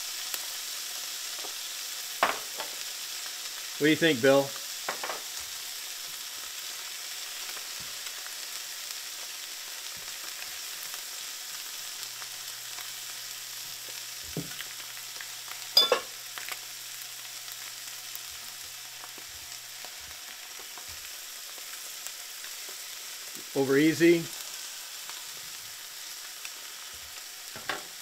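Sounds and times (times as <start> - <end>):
food sizzling in a skillet: 0.0 - 28.0.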